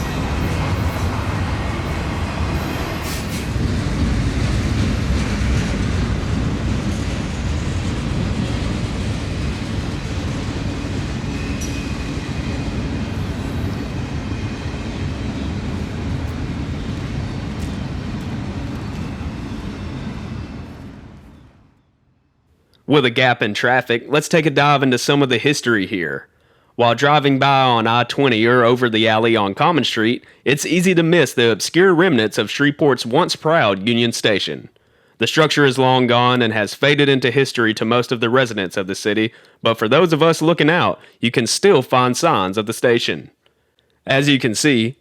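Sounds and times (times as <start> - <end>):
train wheels rumbling on rail: 0.0 - 21.8
sharp clicks from train cars: 17.6 - 19.1.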